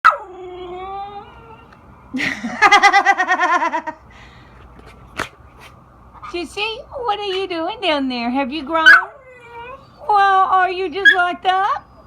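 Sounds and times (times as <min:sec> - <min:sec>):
woman giggling: 0:02.2 - 0:04.0.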